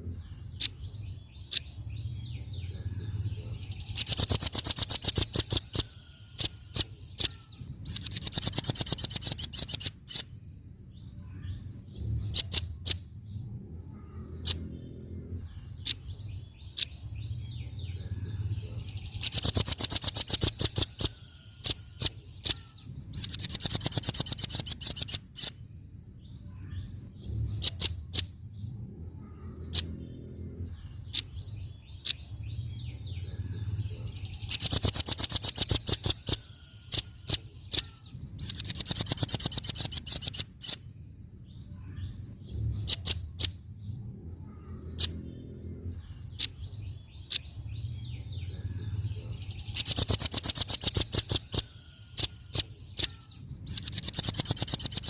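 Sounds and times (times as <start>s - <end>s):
low steady hum: 0.0s - 8.8s
bird calling with sharp chips: 3.9s - 10.4s, 19.2s - 25.6s, 34.4s - 40.9s, 49.7s - 55.0s.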